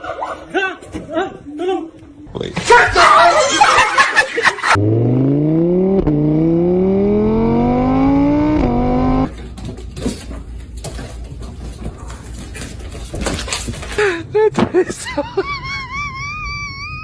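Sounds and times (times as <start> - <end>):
engine accelerating through gears: 4.8 - 9.3
clicks and rustling: 9.3 - 14.1.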